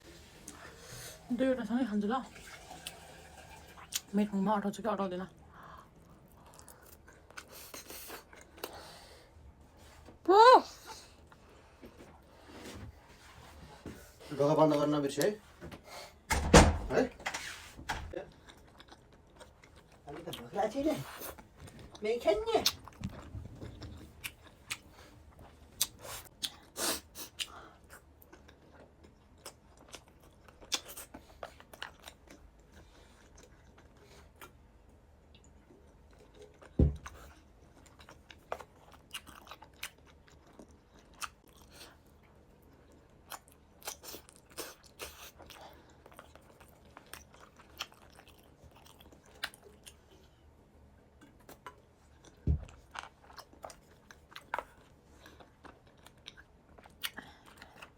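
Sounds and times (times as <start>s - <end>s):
person chewing and biting: 22.6s - 25.1s, 36.1s - 42.0s.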